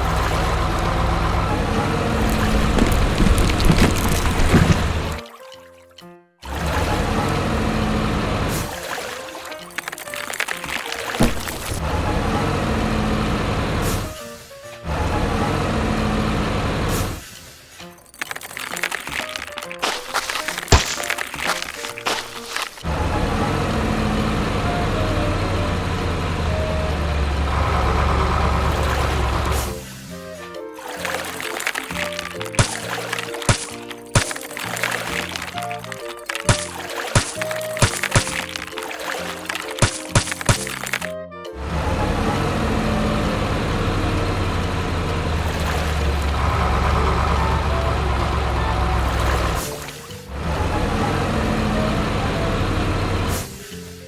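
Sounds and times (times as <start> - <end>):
heavy vehicle engine running: 0.0 - 5.2, 6.5 - 8.7, 11.2 - 14.2, 14.8 - 17.2, 22.9 - 29.8, 41.6 - 49.7, 50.3 - 53.7.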